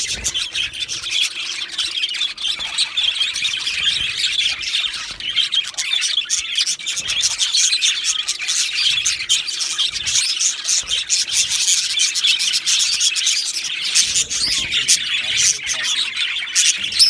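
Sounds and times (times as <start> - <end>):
budgerigars chirping and warbling: 0.0 - 17.0.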